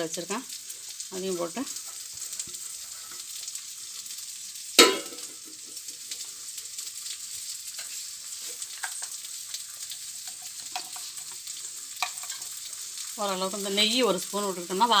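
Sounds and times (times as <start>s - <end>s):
pot simmering hiss: 0.0s - 15.0s
utensil clanging on pot: 4.8s - 5.6s.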